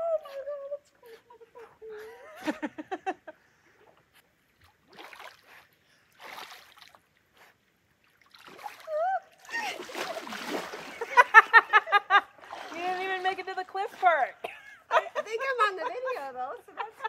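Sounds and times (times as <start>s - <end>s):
water splashing: 4.4s - 14.6s.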